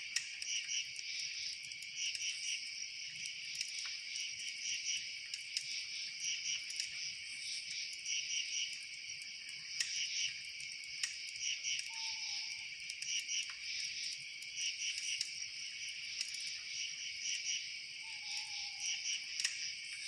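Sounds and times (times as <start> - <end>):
insects chirping: 0.1 - 20.0.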